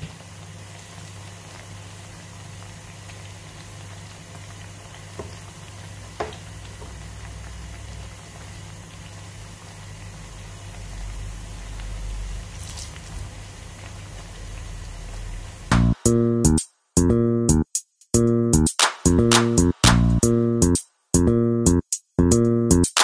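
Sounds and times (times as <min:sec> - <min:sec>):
plantain sizzling in hot oil: 0:00.0 - 0:16.0
metal spoon knocking on pan: 0:06.2 - 0:07.0.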